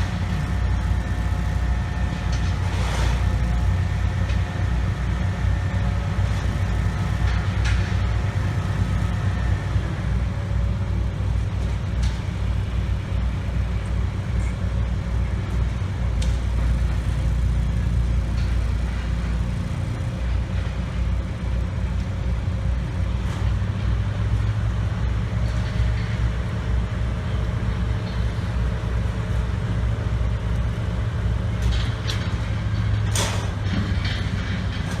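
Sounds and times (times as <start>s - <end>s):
heavy machinery engine running: 0.0s - 35.0s.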